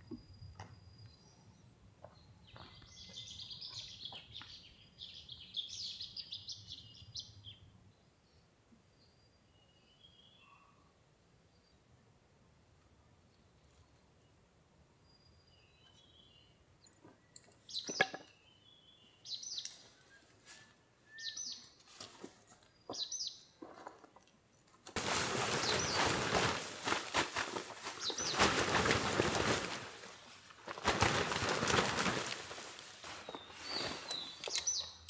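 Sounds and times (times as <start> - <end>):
small birds chirping: 0.0 - 11.9, 15.0 - 35.0
loud crackling rustle: 24.9 - 34.8.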